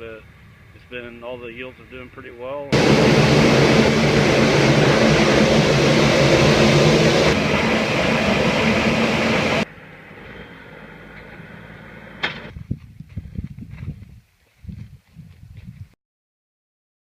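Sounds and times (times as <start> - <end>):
machinery engine running: 2.7 - 12.5.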